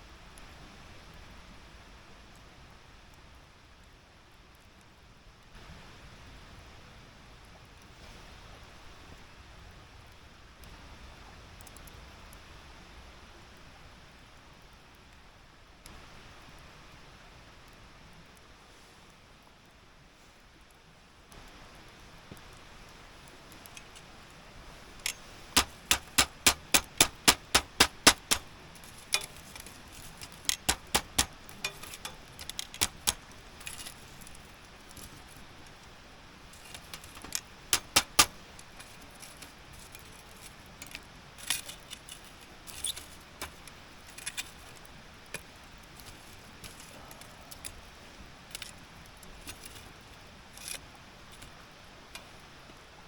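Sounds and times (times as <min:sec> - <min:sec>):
sharp clicks: 0:25.0 - 0:34.0, 0:36.6 - 0:40.1.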